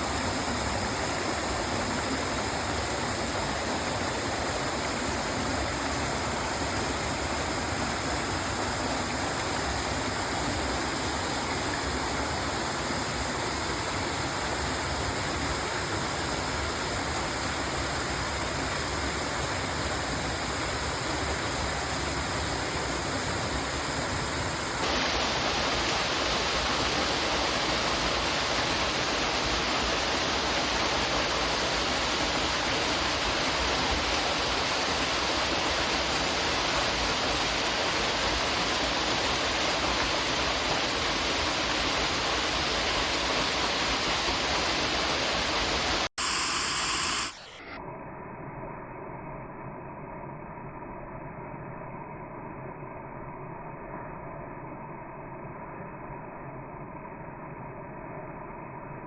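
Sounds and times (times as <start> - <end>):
waterfall roaring: 0.0 - 46.1.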